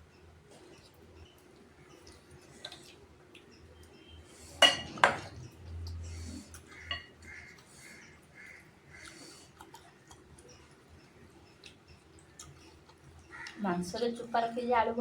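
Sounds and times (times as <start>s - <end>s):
cutlery clinking on dishes: 4.6s - 5.4s, 6.9s - 7.1s.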